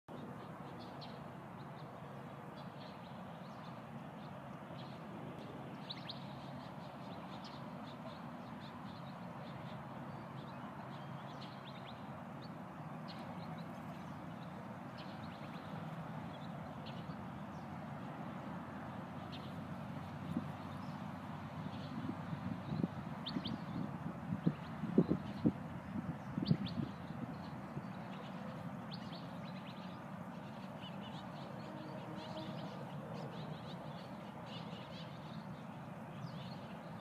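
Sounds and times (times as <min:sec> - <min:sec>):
outdoor background noise: 0:00.1 - 0:37.0
birds chirping: 0:18.8 - 0:37.0.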